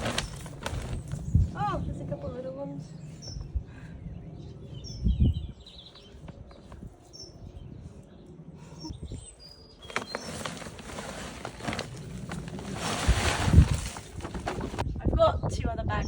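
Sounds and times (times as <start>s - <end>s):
hands rummaging through soil: 0.0s - 1.3s, 9.8s - 14.8s
small birds chirping: 0.2s - 12.6s.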